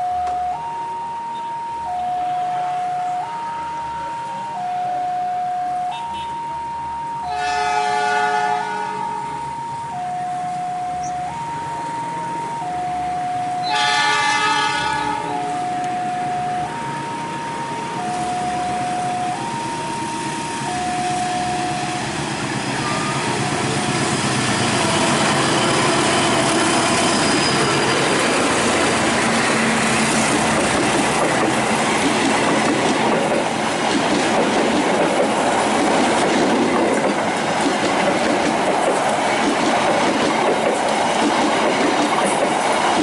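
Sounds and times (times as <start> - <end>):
two-tone signal: 0.0 - 22.1, 22.8 - 24.1
train wheels and carriages passing: 0.0 - 43.0.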